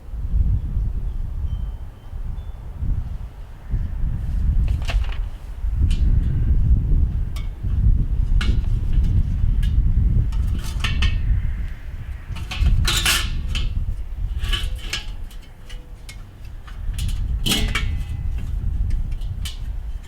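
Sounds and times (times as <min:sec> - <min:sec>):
low steady rumble: 0:00.0 - 0:20.0
metal grill parts clinking: 0:08.3 - 0:11.4, 0:12.1 - 0:20.0.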